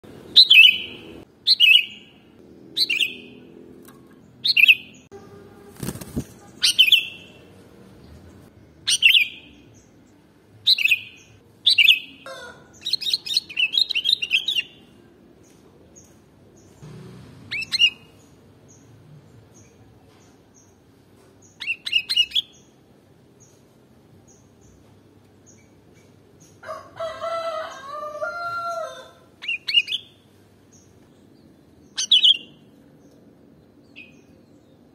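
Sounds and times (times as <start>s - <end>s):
bird chattering: 5.8s - 7.5s, 8.9s - 9.6s, 32.0s - 32.6s.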